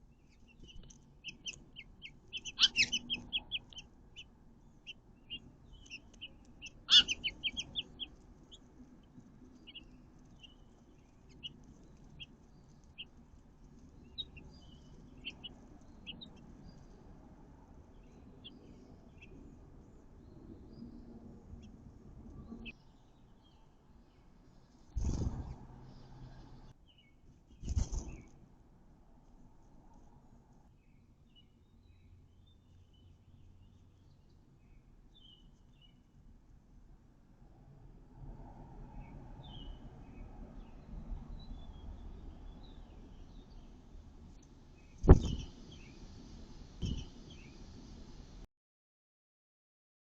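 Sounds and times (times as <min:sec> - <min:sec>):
songbird chirping: 0:00.0 - 0:25.3, 0:46.8 - 0:47.7.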